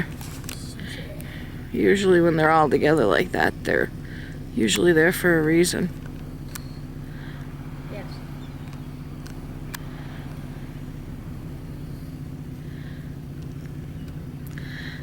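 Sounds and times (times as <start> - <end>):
car engine humming: 0.0 - 15.0
faint sharp clicks: 13.4 - 14.6.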